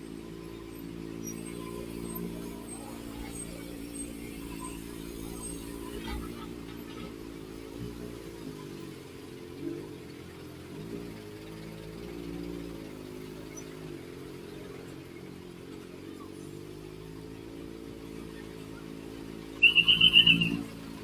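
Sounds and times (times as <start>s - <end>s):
motorcycle engine at low revs: 0.0s - 21.0s
loud high trilling tone: 19.6s - 20.6s.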